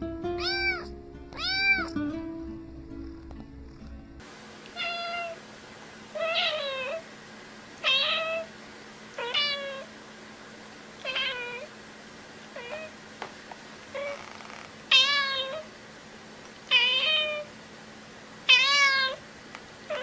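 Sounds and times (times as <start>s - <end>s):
cat meowing: 0.4s - 2.0s, 4.8s - 5.4s, 6.2s - 7.0s, 7.8s - 8.5s, 9.2s - 9.9s, 11.0s - 11.7s, 12.6s - 12.9s, 14.0s - 15.7s, 16.7s - 17.5s, 18.5s - 19.2s.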